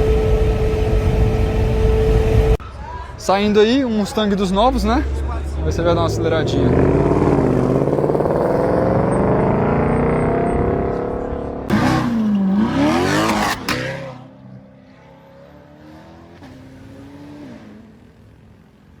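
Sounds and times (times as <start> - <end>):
car driving off: 4.5 - 18.8
car engine accelerating hard: 4.8 - 18.1.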